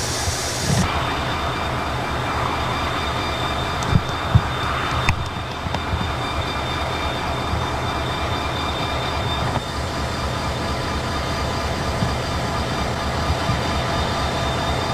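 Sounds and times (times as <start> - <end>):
freight train rumbling: 0.0 - 14.9
faint clicks: 3.8 - 6.6.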